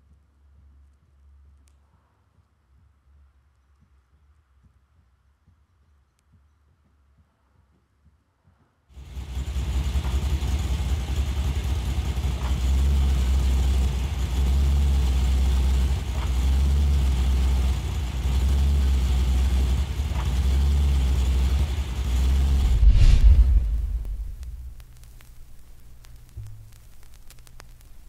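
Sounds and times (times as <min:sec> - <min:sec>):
car engine and drivetrain rumble: 0:09.0 - 0:25.1
faint light clicks: 0:23.9 - 0:28.0.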